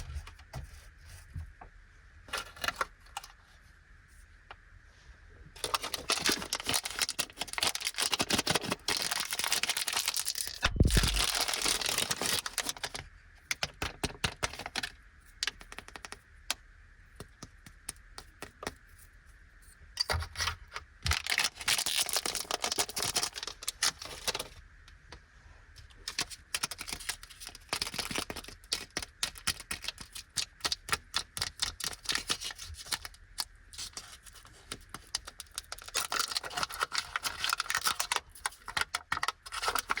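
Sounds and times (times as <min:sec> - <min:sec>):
plastic wrappers crinkling: 0:05.6 - 0:16.2, 0:21.0 - 0:24.6, 0:25.9 - 0:40.0.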